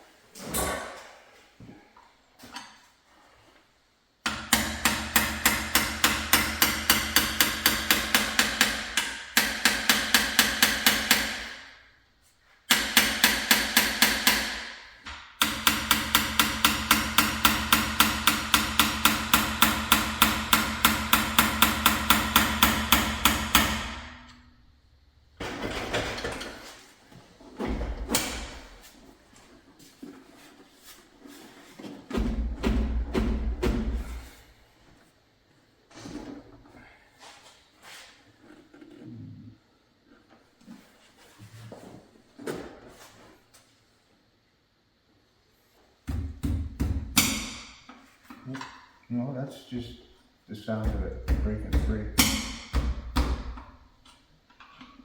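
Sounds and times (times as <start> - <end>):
impact wrench hammering: 4.2 - 11.8, 12.7 - 24.4, 46.1 - 47.9, 50.8 - 53.8.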